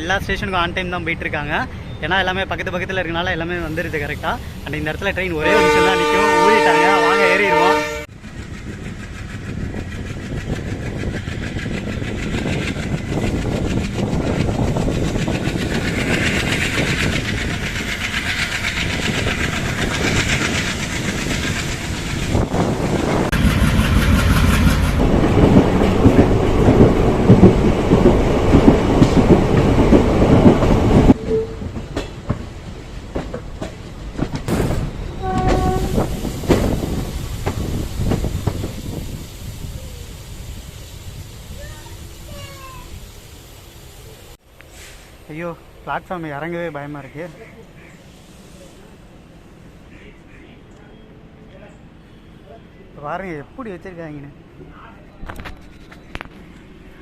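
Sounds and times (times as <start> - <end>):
train horn tone: 5.4 - 8.1, 31.2 - 31.6, 35.2 - 36.1
train wheels clattering on track: 8.1 - 39.3.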